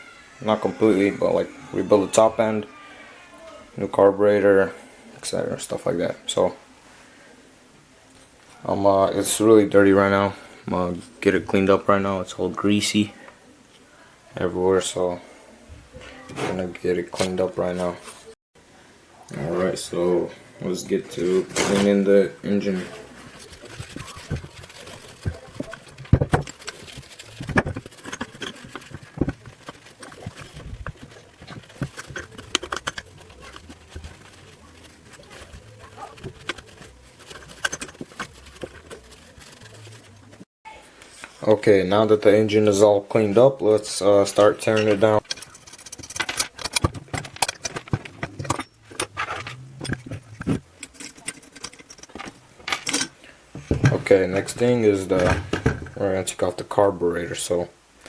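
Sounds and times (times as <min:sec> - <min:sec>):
hand tools clicking on metal: 0:23.6 - 0:34.4.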